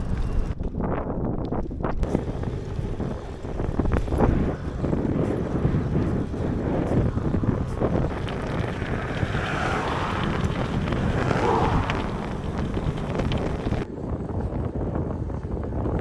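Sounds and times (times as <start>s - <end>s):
wind buffeting microphone: 0.0s - 16.0s
vehicle passing: 2.1s - 13.8s.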